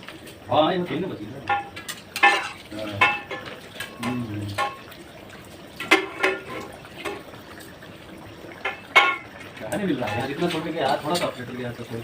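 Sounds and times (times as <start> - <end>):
liquid sloshing in pot: 0.0 - 12.0
metal utensils clinking: 0.9 - 4.8, 5.8 - 7.2, 8.6 - 11.6.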